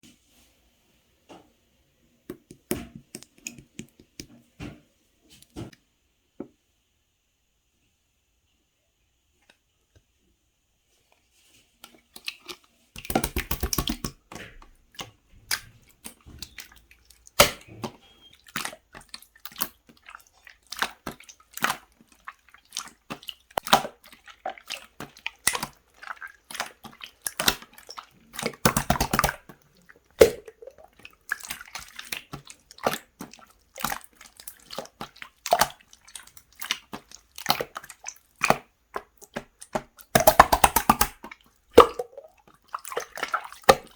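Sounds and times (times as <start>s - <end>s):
slime squelching and popping: 12.1s - 43.9s
crackling slime squish: 18.4s - 43.9s.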